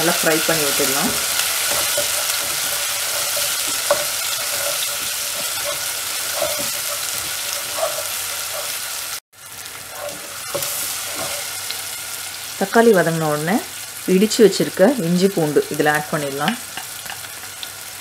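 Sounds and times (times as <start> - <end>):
wooden spatula scraping and knocking: 0.0 - 9.0, 9.9 - 11.5
onion and tomato sizzling in oil: 0.0 - 18.0.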